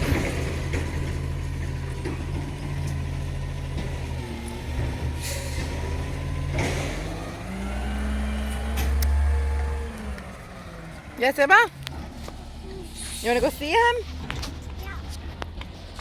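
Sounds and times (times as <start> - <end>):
garbage truck engine running: 0.0 - 16.0
short hisses: 12.8 - 13.6.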